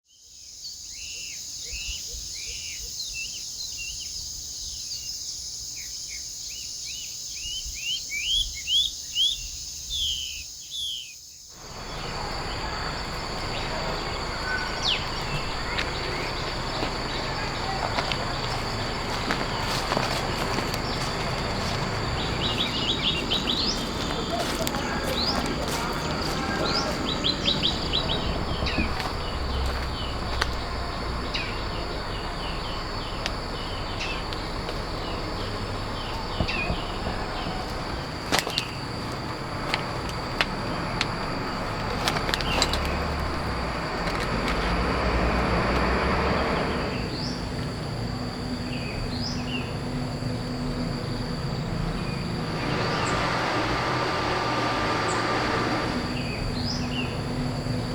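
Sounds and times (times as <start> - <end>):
birds chirping and trilling: 0.4 - 47.5, 48.6 - 49.8, 50.9 - 57.9
outdoor hiss: 11.5 - 57.9.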